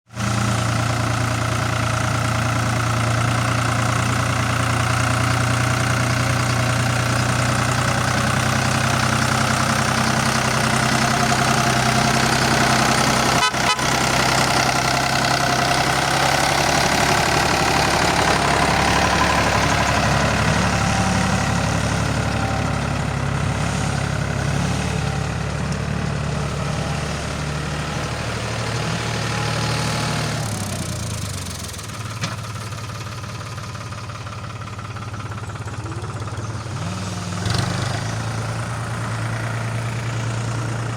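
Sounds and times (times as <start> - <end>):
vehicle engine running: 0.1 - 40.9.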